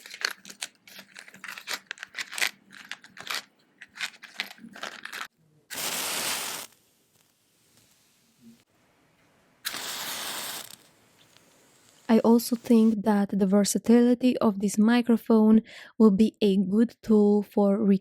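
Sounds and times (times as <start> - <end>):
short burst of hiss: 5.7 - 6.8, 9.6 - 12.1.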